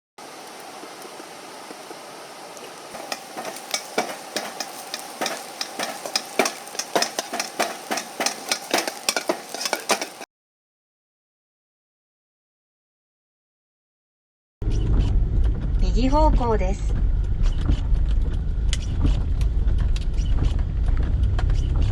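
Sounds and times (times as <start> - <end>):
food sizzling in a wok: 0.2 - 10.3
spatula striking and scraping pan: 3.0 - 10.2.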